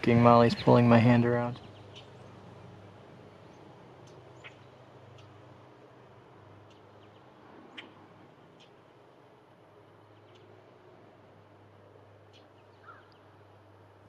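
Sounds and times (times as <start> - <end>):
breezy background: 0.0 - 14.0
faint high bird chirps: 12.2 - 13.3.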